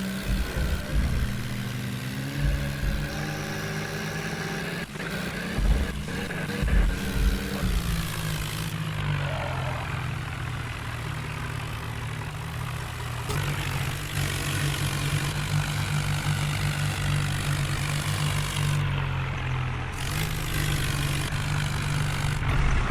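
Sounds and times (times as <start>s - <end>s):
heavy diesel engine running: 0.0s - 22.9s
deep low thumps: 0.2s - 3.5s, 5.6s - 8.8s.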